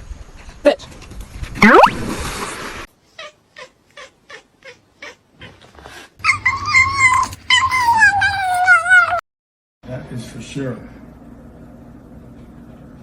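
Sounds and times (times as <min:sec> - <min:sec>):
cat yowling: 0:06.2 - 0:09.2.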